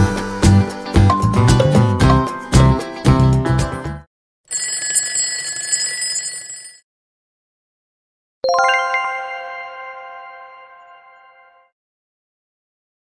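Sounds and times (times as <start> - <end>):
background music: 0.0 - 4.0, 8.5 - 11.7
alarm bell ringing: 4.5 - 6.8.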